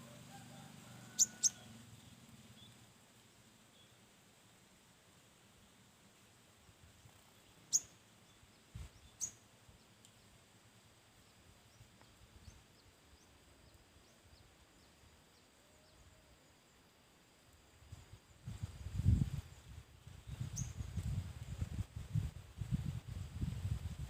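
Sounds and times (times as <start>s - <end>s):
small bird chirping: 1.2s - 2.8s, 7.0s - 9.5s, 20.1s - 21.2s.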